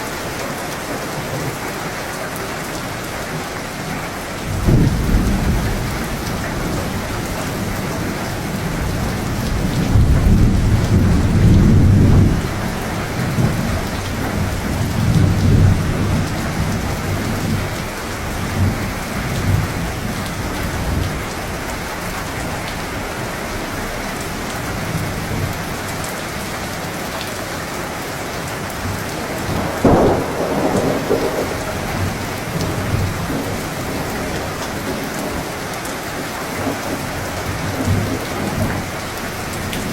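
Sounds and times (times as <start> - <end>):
steady rainfall: 0.0 - 39.9
rolling thunder: 4.4 - 25.7, 28.8 - 35.4
sharp thunderclap: 4.5 - 20.1, 29.2 - 34.0.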